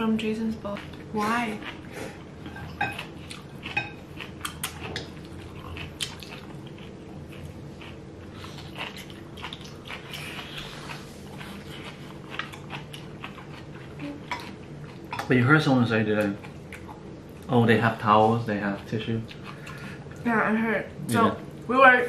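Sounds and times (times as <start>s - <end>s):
chewing and biting: 0.6s - 15.4s, 18.6s - 19.9s.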